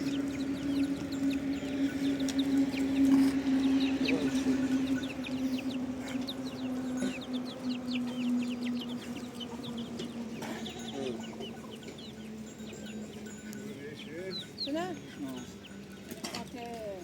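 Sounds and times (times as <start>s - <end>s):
steady low hum: 0.0s - 15.0s
chicks chirping: 0.0s - 16.7s
hen clucking: 0.0s - 16.7s.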